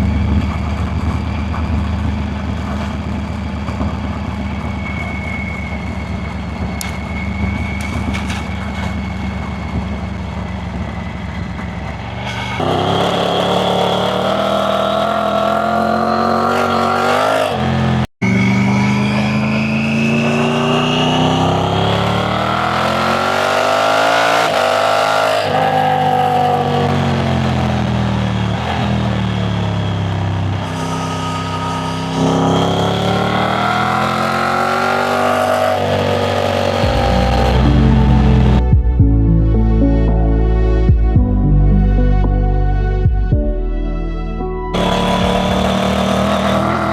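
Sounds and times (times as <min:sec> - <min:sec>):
motorcycle engine under load: 0:00.0 - 0:25.5, 0:44.8 - 0:46.9.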